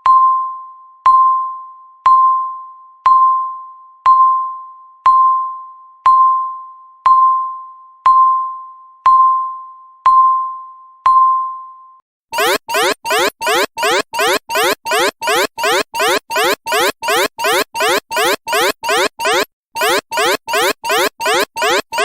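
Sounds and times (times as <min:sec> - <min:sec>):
timer beeping: 0:12.4 - 0:22.0.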